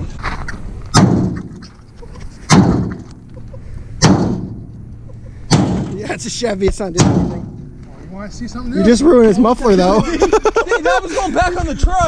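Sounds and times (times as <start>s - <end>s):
heavy blows on a muffler: 4.0s - 4.8s.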